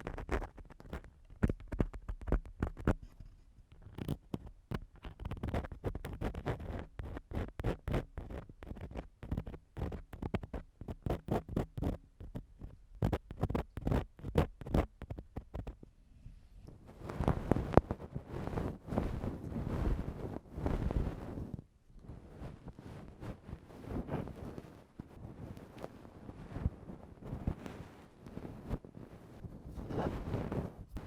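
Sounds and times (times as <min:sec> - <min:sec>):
tool scraping against microphone: 0:29.6 - 0:31.0.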